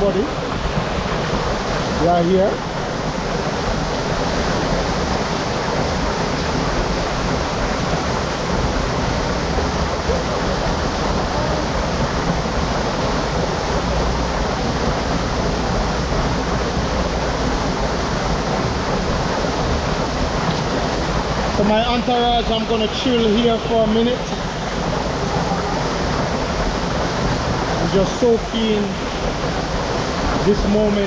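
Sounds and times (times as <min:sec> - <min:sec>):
water rushing: 0:00.0 - 0:31.0.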